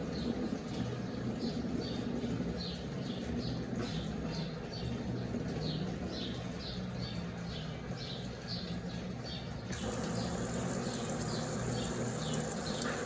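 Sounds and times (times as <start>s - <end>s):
washing machine hum: 0.0s - 13.0s
running water: 9.7s - 13.0s.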